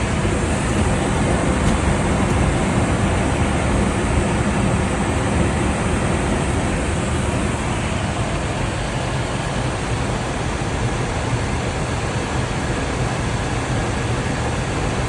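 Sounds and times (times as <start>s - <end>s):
aircraft airflow rush: 0.0s - 15.0s.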